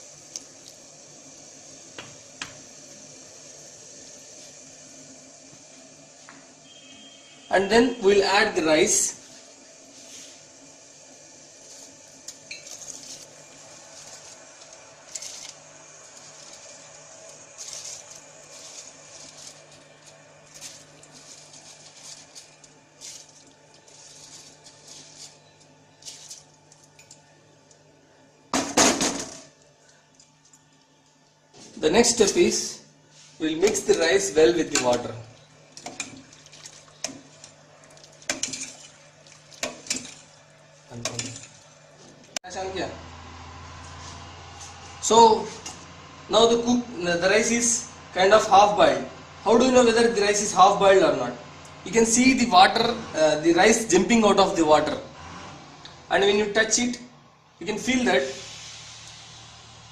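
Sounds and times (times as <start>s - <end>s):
water splashing in a pot: 34.7s - 41.8s.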